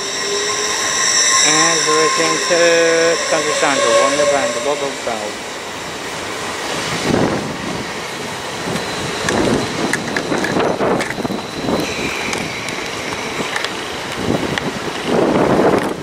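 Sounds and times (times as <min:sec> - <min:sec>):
thin high squeal: 0:00.0 - 0:07.0
freight train wheels rumbling: 0:00.0 - 0:16.0
wind on microphone: 0:06.7 - 0:16.0.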